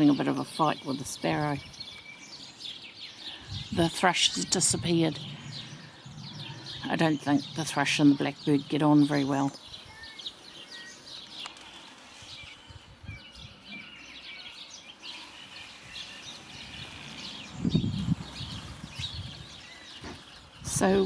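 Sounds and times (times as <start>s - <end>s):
small birds chirping: 0.0s - 21.0s
low rumble: 3.5s - 9.2s.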